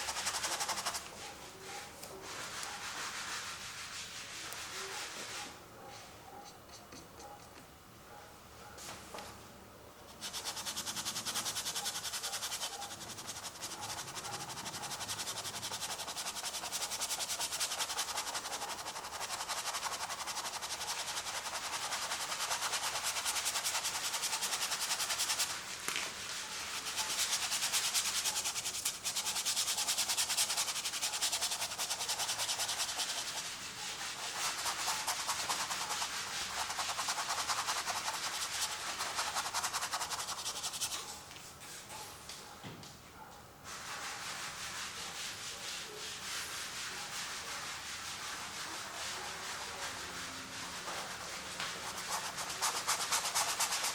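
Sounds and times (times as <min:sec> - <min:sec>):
paint rubbing on canvas: 0:00.0 - 0:05.6, 0:10.1 - 0:41.2, 0:43.7 - 0:53.9.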